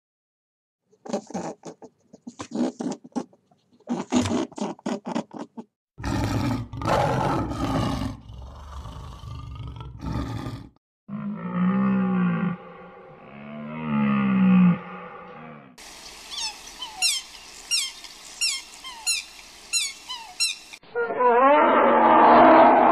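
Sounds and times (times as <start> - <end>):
big cat growling: 6.0 - 15.8.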